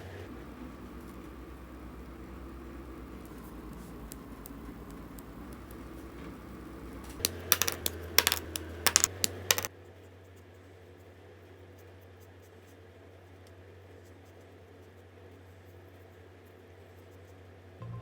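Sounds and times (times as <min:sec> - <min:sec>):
faint steady hum: 0:00.0 - 0:09.6
markers clicking and tapping: 0:07.1 - 0:09.7.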